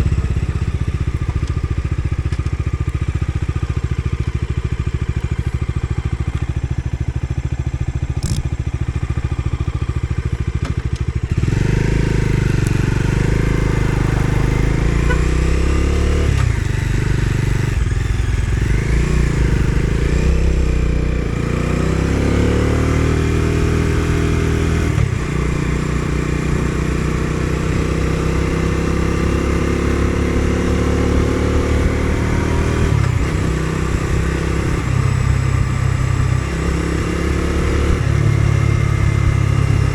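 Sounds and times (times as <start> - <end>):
motorcycle engine idling: 0.0 - 15.5, 16.4 - 21.5
motorcycle accelerating through gears: 0.0 - 39.9.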